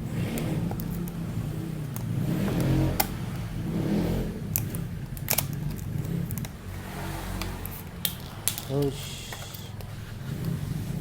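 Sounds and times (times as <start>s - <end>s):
packaging clicks and handling: 4.5s - 6.6s.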